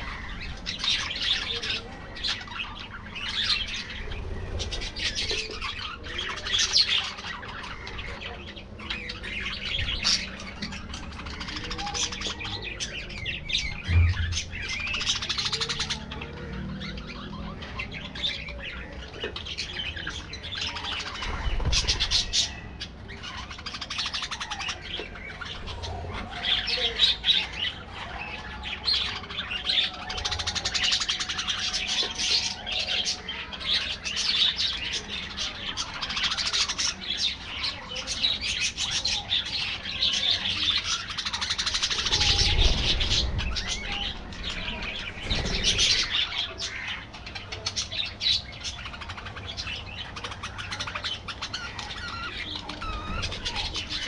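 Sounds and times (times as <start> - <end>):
budgerigars chattering and chirping: 0.0 - 54.0
low rumbles: 13.4 - 15.5, 41.9 - 47.1.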